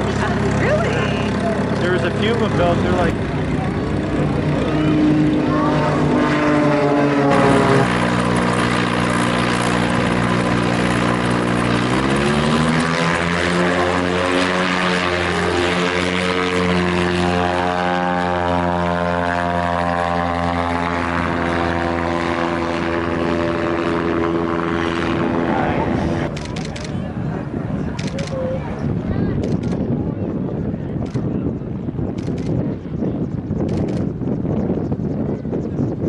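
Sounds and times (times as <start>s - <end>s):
piston engine and propeller: 0.0s - 36.0s.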